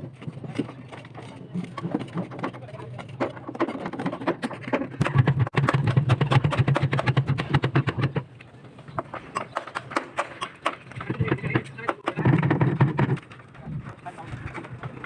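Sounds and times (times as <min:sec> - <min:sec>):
formwork knocking and clattering: 0:00.5 - 0:08.2, 0:09.0 - 0:14.8.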